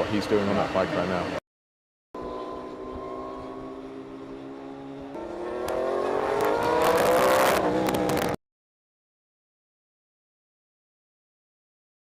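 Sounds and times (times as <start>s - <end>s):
engine crackles: 2.2s - 8.4s
racing engine accelerating: 2.2s - 8.4s.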